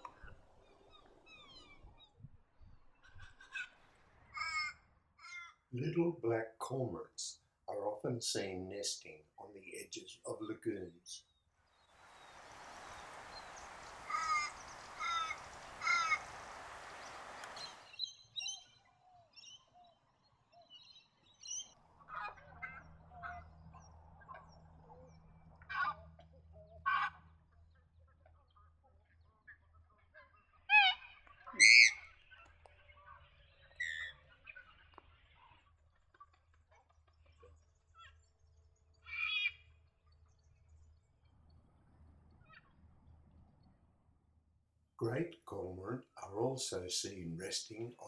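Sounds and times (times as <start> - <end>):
bird calls and chirps: 0.0 - 4.7, 11.7 - 25.2.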